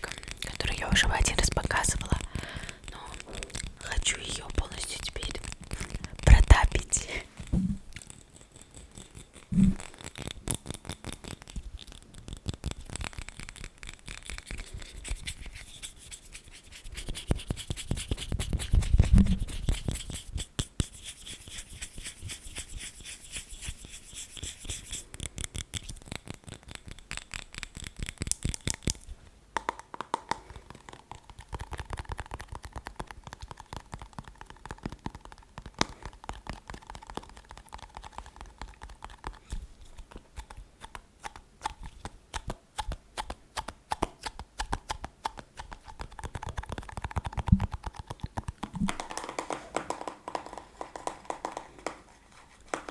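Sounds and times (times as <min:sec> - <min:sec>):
tapping and scratching on hard object: 0:00.0 - 0:29.0, 0:29.6 - 0:52.9
rubbing: 0:11.0 - 0:25.0.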